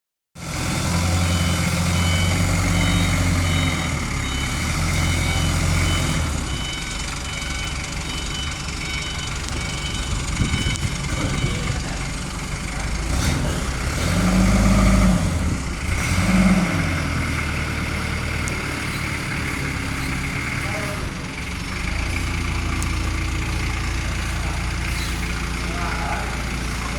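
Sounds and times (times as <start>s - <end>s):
diesel engine running and revving: 0.4s - 26.9s
reversing alarm beeping: 1.0s - 12.2s.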